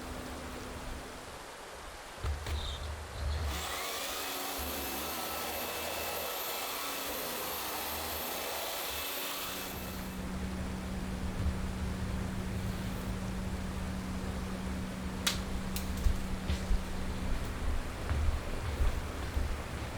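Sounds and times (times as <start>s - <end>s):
low thumps: 10.4s - 19.9s.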